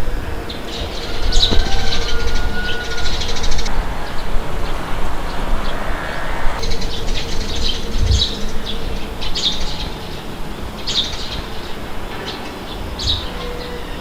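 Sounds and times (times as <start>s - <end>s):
wind rushing with low rumble: 0.0s - 12.1s
small birds chirping: 6.6s - 14.0s.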